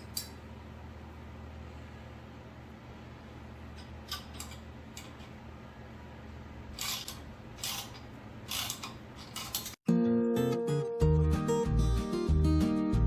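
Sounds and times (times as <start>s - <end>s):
wrench mechanical strokes: 6.8s - 9.8s.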